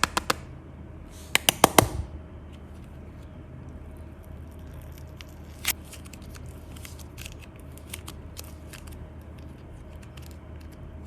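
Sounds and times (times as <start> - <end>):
clay crackling clicks: 3.7 - 11.0.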